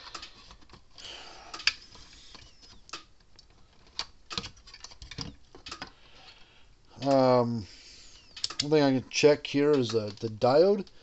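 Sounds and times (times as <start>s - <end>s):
small hard objects clicking: 8.3s - 8.8s.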